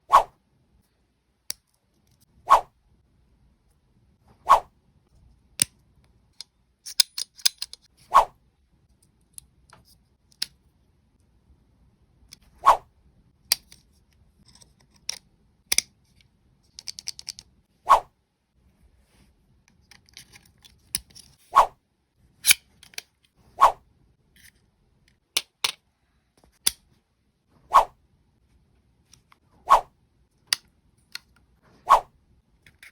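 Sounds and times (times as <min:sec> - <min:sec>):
plastic and metal parts clicking: 0:05.6 - 0:07.9, 0:14.4 - 0:17.5.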